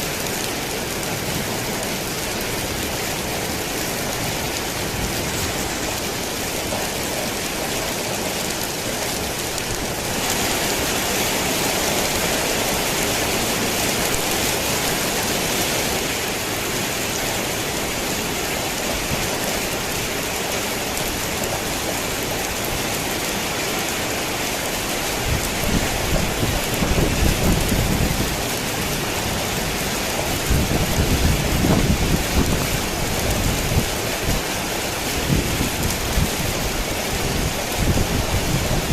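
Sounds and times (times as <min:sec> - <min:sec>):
rain on a tin roof: 0:00.0 - 0:38.9.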